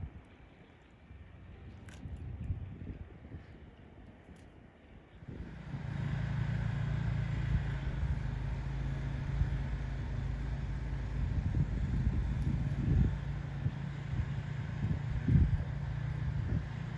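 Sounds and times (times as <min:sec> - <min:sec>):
vehicle engine running: 0:05.2 - 0:16.9.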